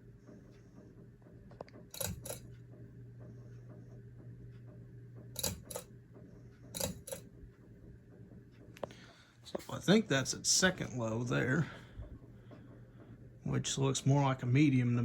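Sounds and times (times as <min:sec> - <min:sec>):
fan motor hum: 0:00.0 - 0:15.0.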